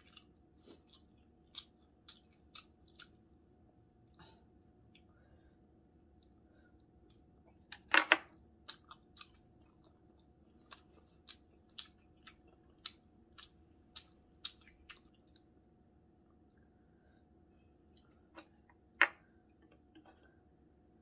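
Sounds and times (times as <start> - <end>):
wet chewing mouth clicks: 0.0 - 3.2.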